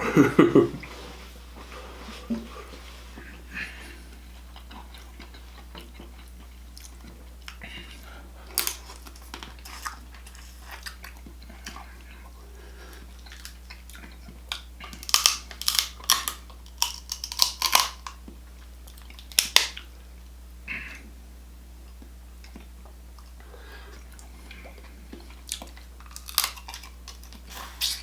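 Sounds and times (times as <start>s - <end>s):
crunching and crackling: 2.2s - 12.4s, 13.0s - 19.9s, 24.0s - 28.0s
wet chewing: 3.2s - 19.9s, 21.9s - 28.0s.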